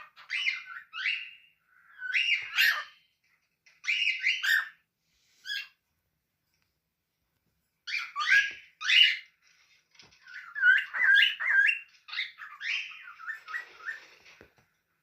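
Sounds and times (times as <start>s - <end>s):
cockatiel whistling: 0.1s - 3.0s, 7.9s - 9.3s.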